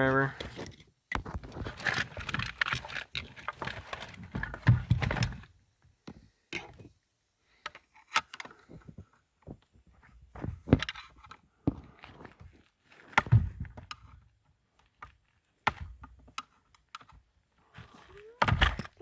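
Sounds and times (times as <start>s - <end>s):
plastic and wiring clattering: 0.4s - 5.5s.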